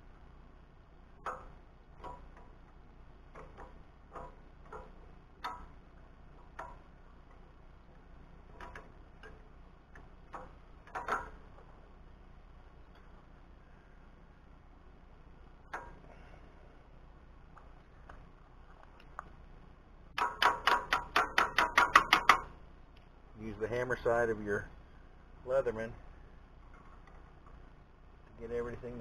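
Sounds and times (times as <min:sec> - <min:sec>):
hand tools clicking and tapping metal: 0:20.2 - 0:22.5.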